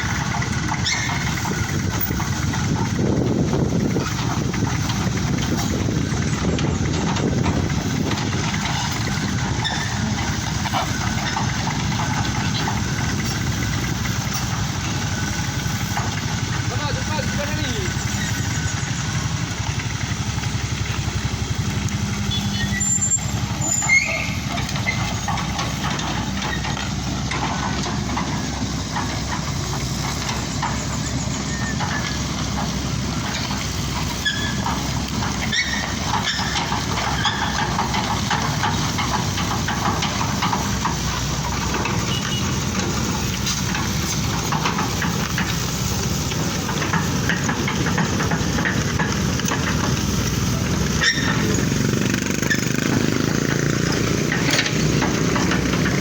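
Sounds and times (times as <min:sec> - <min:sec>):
vehicle engine rumbling: 0:00.0 - 0:56.0
short high squeaks: 0:00.7 - 0:01.4, 0:08.7 - 0:10.4, 0:17.9 - 0:19.0, 0:22.2 - 0:25.5, 0:34.1 - 0:37.7, 0:50.9 - 0:52.7.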